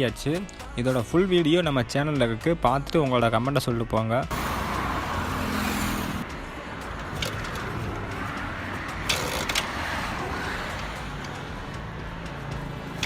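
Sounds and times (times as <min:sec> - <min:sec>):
motor vehicle noise: 0:04.3 - 0:13.0.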